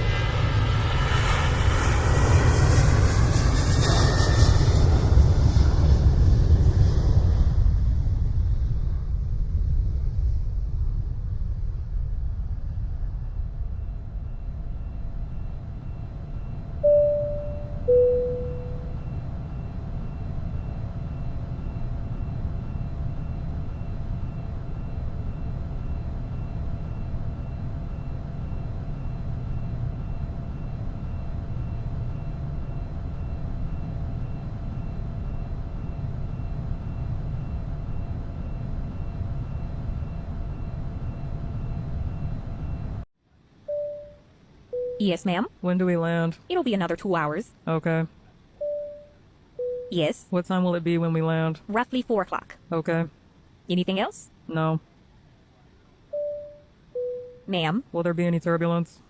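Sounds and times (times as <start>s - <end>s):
jet engines rumbling: 0.0s - 43.1s
two-tone cabin chime: 16.8s - 19.1s, 43.7s - 45.1s, 48.6s - 50.1s, 56.1s - 57.5s.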